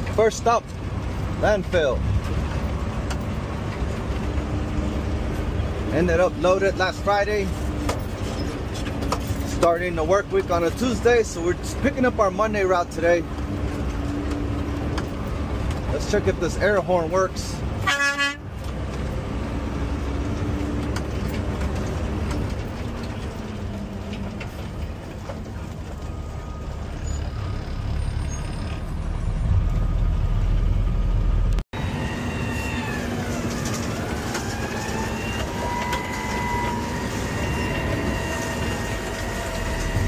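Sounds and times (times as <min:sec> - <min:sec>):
truck diesel engine running: 0:18.5 - 0:40.0.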